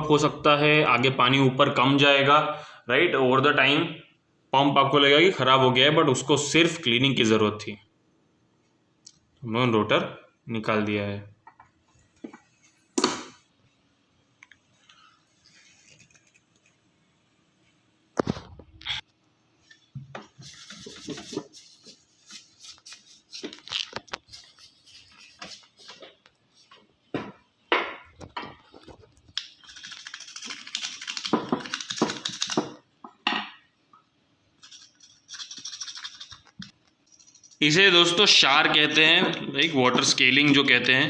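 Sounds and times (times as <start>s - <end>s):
screwdriver scraping scale: 34.6s - 36.4s.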